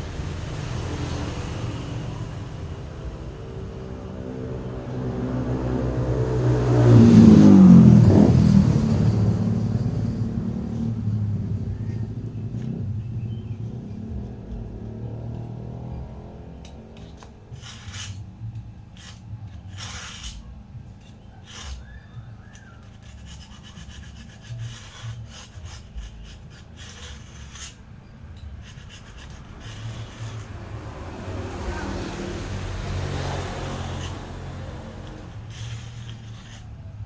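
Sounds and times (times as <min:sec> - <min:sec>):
low rumble: 0:00.0 - 0:36.7
hand scraping on wood: 0:16.0 - 0:37.0.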